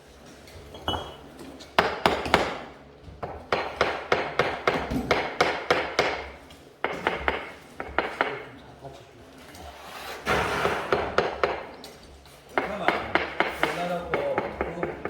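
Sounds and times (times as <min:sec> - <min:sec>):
hammer striking with ringing knocks: 0:12.6 - 0:15.0.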